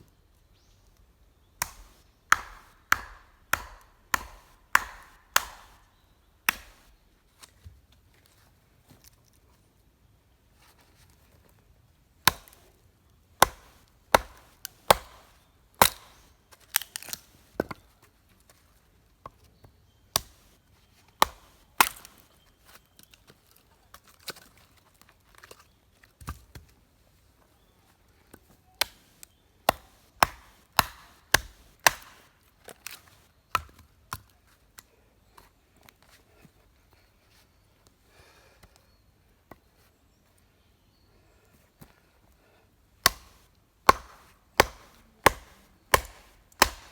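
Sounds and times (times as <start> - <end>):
wood being chopped: 1.6 - 6.9, 12.2 - 12.7, 13.4 - 17.8, 20.2 - 20.6, 21.2 - 22.3, 29.7 - 34.2, 43.0 - 46.9.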